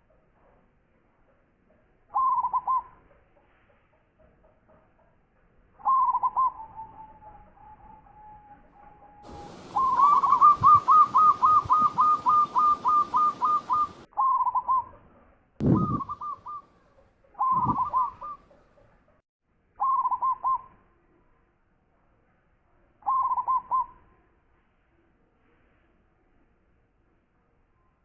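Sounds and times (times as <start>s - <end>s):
dove cooing: 2.1s - 3.0s, 5.8s - 8.1s, 9.2s - 14.9s, 15.6s - 16.6s, 17.4s - 18.8s, 19.8s - 20.7s, 23.0s - 23.9s
low thuds: 15.6s - 16.2s.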